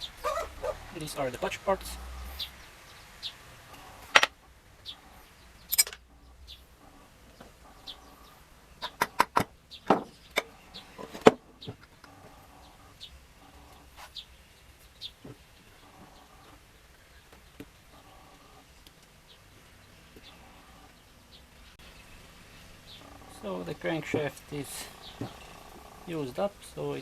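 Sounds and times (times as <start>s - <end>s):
faint bird chirps: 4.8s - 9.0s, 24.5s - 26.2s
metal engine parts clinking: 5.7s - 6.0s.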